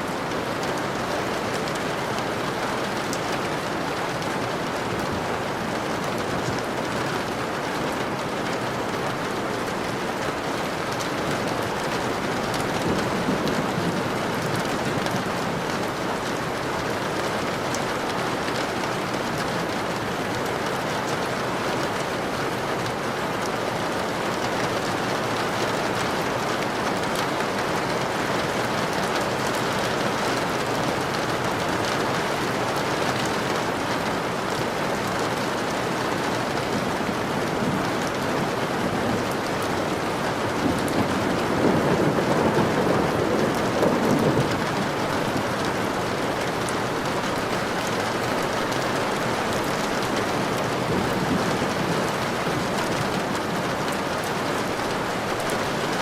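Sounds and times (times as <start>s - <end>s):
rain falling: 0.0s - 56.0s
low rumble of thunder: 40.5s - 45.4s.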